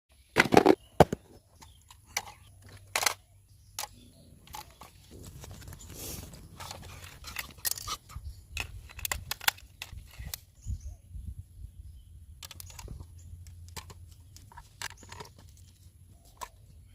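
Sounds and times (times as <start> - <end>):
handling clicks and taps: 12.4 - 16.8.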